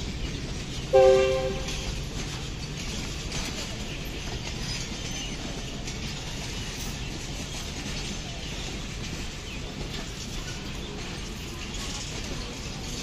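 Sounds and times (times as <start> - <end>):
train wheels rumbling on rails: 0.0 - 13.0
locomotive horn blast: 0.9 - 1.9.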